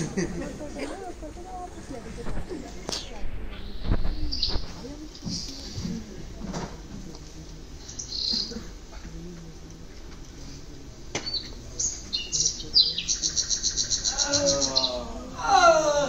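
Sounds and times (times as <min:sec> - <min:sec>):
bird chirps: 0:07.8 - 0:08.6, 0:11.2 - 0:15.0
rapid high bird trill: 0:11.4 - 0:15.0.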